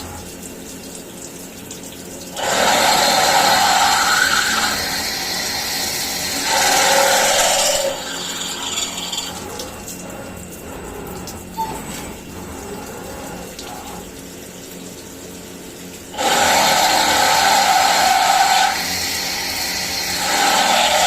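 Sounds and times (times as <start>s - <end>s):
milling machine cutting metal: 2.4s - 14.0s, 16.1s - 21.0s.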